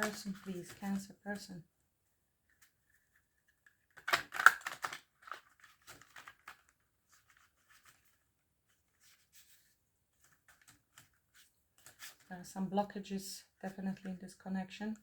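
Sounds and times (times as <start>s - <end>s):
card taps and rustles: 0.0s - 1.0s, 3.5s - 8.2s
cards being shuffled: 0.0s - 1.1s, 2.5s - 12.3s.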